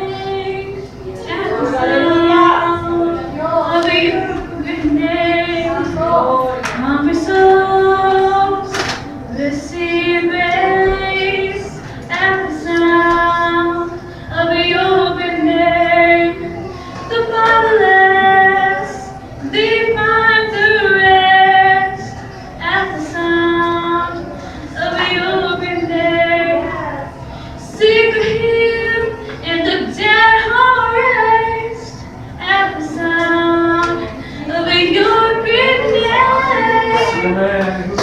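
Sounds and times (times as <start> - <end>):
women singing worship song: 0.0 - 38.0.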